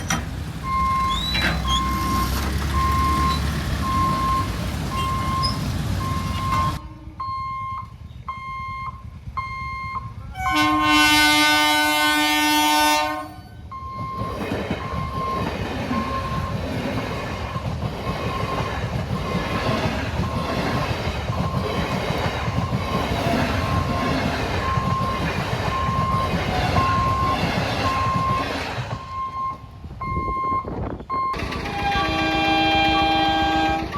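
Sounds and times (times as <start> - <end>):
short beeps: 0.7 - 10.2, 29.0 - 31.4
train horn: 6.8 - 7.2, 10.3 - 13.5, 26.4 - 28.0, 31.4 - 33.9
train wheels clattering: 13.9 - 29.2, 31.4 - 33.9.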